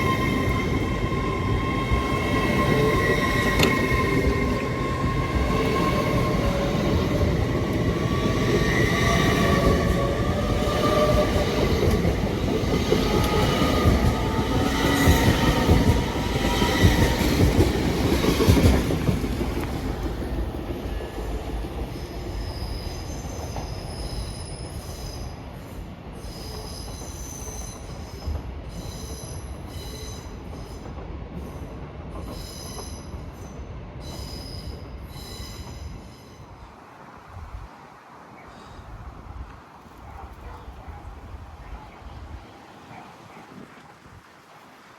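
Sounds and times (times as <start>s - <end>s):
squealing wheels and brakes: 0.0s - 12.1s, 21.9s - 30.9s, 32.2s - 36.8s
train running: 0.0s - 37.7s.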